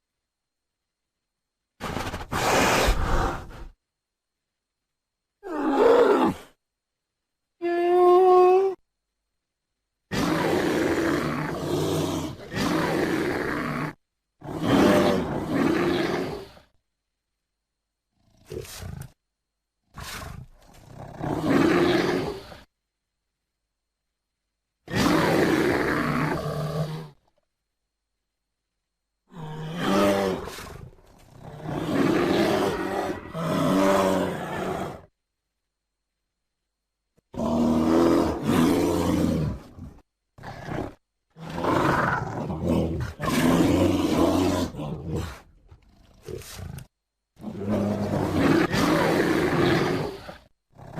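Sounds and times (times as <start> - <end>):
bear roaring and growling: 5.4 - 6.6, 10.1 - 16.7, 18.2 - 19.2, 19.9 - 22.7, 24.9 - 27.2, 29.3 - 35.1, 37.3 - 50.9.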